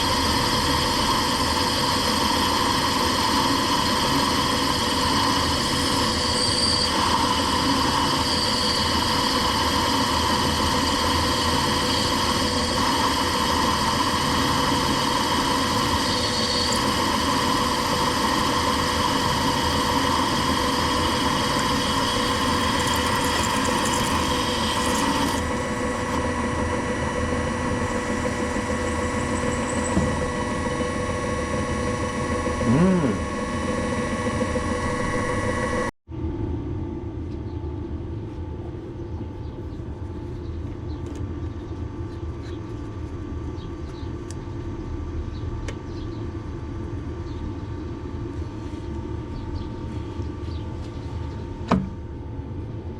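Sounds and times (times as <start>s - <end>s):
electric motor humming: 0.0s - 35.9s.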